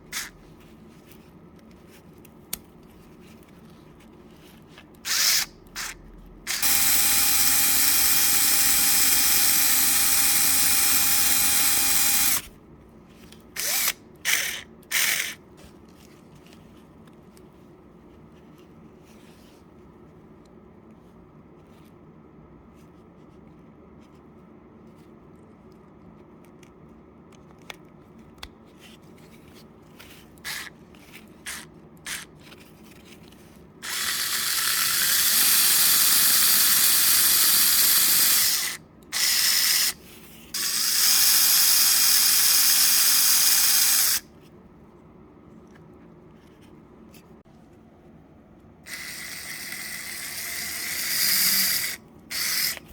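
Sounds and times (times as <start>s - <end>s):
electric impact drill running: 6.5s - 12.5s, 13.6s - 15.2s, 33.8s - 40.0s, 40.6s - 44.2s, 48.9s - 52.8s.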